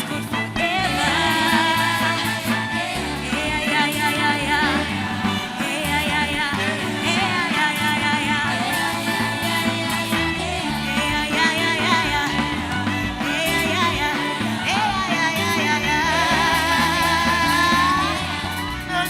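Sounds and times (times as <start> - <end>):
live band playing: 0.0 - 19.0
people singing: 0.0 - 19.0.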